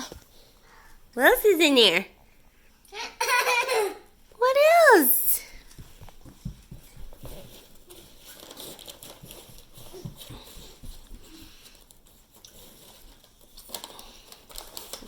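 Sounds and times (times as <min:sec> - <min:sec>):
candy wrappers rustling: 0:07.1 - 0:15.0.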